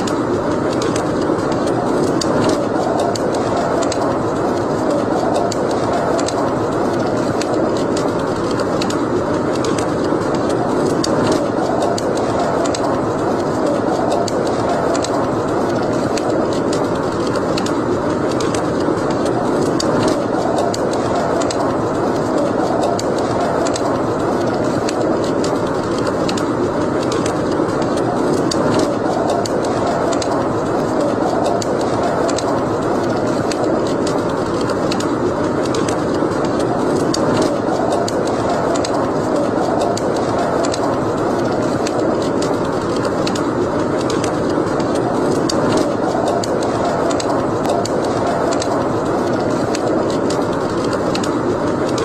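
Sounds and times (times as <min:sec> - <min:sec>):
fire crackling: 0:00.0 - 0:52.0
fire rushing: 0:00.0 - 0:52.0.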